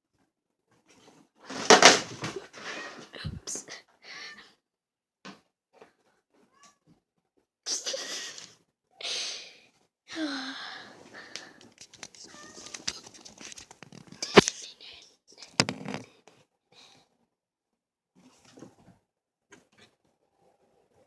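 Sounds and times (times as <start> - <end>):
rustling of play: 0.6 - 3.5, 11.0 - 14.6.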